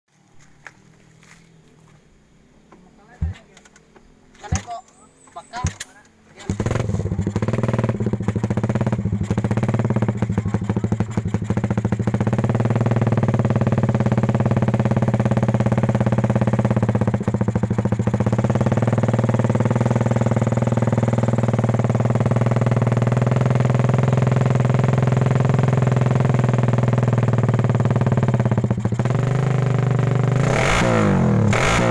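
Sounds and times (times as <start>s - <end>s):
motorcycle engine starting and idling: 2.7s - 31.9s.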